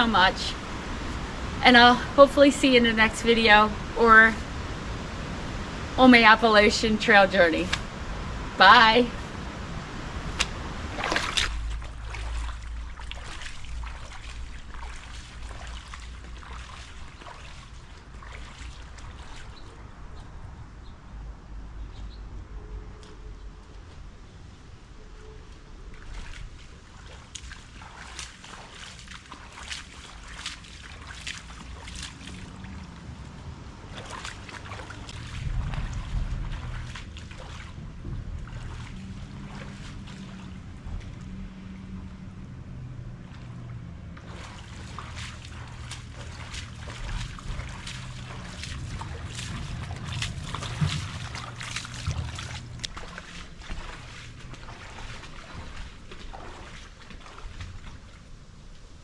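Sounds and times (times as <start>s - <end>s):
water trickling and splashing: 0.0s - 20.6s, 25.4s - 59.0s
wind rumble on microphone: 0.0s - 59.0s
crackly drips: 9.2s - 19.8s, 25.5s - 58.2s.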